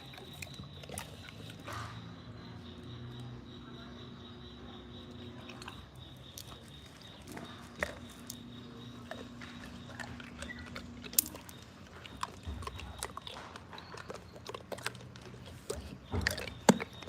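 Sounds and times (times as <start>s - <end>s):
dog chewing and biting: 0.0s - 2.1s, 5.4s - 17.0s
wet clicks: 5.1s - 17.0s.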